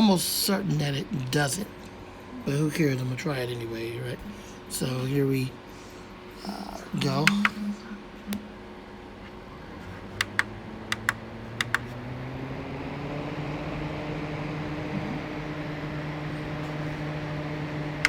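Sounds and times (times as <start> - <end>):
fan air rushing: 0.0 - 18.0
fan motor hum: 0.0 - 18.0
button double clicks: 10.2 - 11.9.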